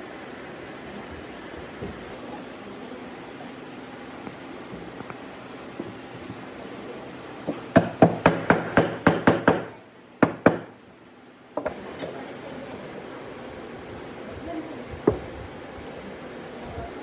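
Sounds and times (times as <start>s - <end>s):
hammering on wood: 7.5s - 10.8s.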